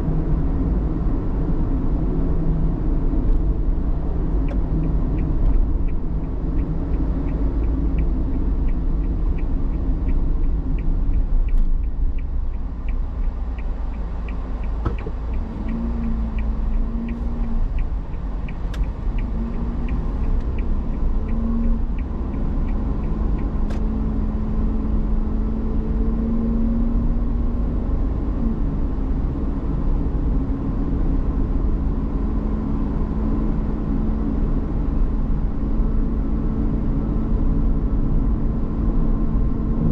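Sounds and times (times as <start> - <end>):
vehicle driving on road: 0.0 - 39.9
rapid light ticking: 4.5 - 23.8.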